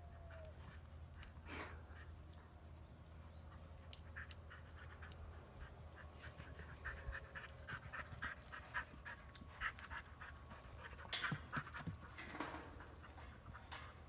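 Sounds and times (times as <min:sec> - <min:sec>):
dog panting: 0:03.4 - 0:14.0.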